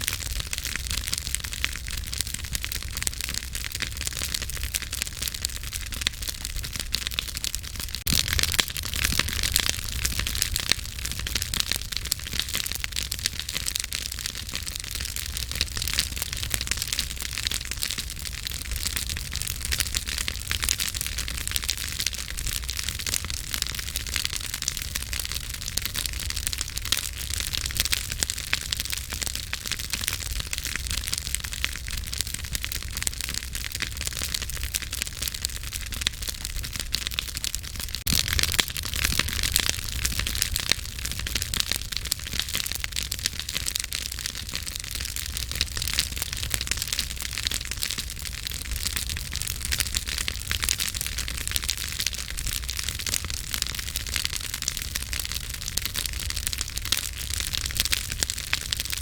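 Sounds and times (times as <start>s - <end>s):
campfire crackling: 0.0s - 59.0s.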